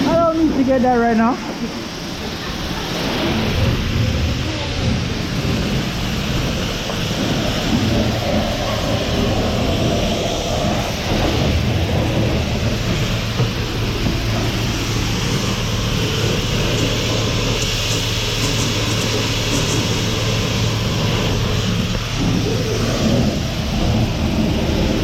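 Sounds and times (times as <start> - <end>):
high-pressure water spray hissing: 0.0 - 25.0
pump humming: 0.0 - 25.0.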